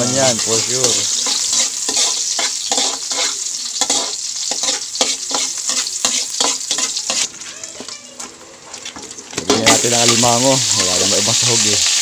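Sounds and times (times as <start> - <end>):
metal spatula scraping wok: 0.0 - 7.4
onions sizzling in hot oil: 0.0 - 12.0.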